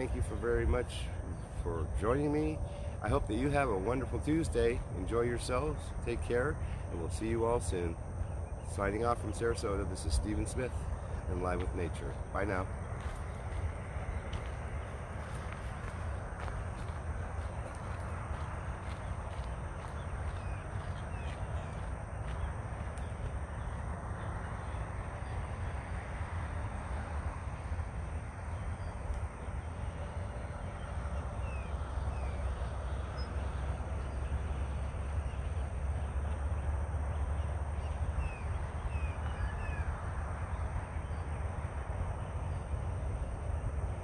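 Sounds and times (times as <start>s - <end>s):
wind buffeting microphone: 4.6s - 25.8s.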